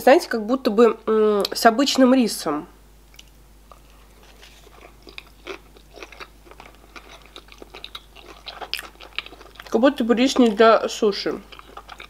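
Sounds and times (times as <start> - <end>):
wet chewing mouth clicks: 4.6 - 10.6, 11.4 - 12.0.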